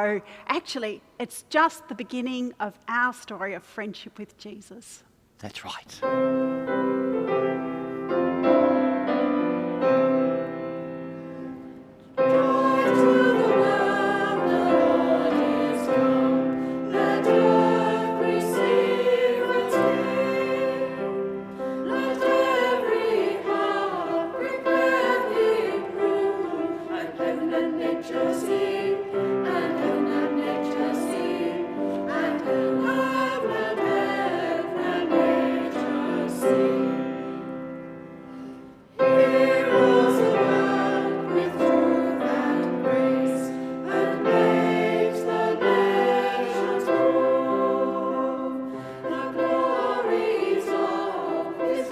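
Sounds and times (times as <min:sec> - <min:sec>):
piano chords: 0:06.0 - 0:51.9
choir singing: 0:06.1 - 0:51.9.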